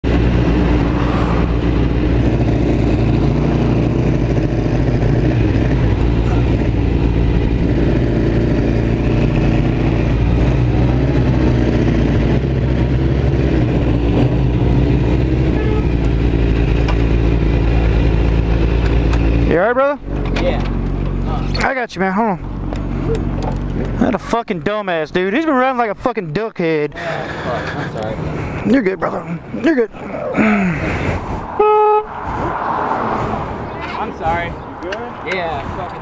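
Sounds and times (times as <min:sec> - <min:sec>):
motorcycle engine running: 0:00.0 - 0:21.6.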